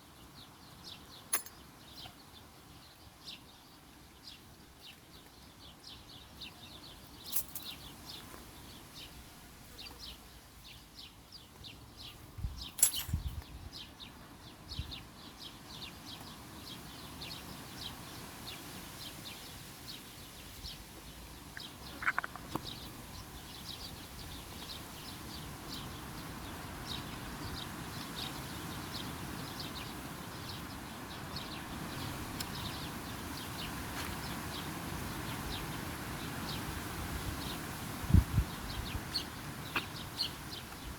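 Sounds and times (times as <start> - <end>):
background hiss: 0.0 - 40.9
small birds chirping: 0.0 - 40.9.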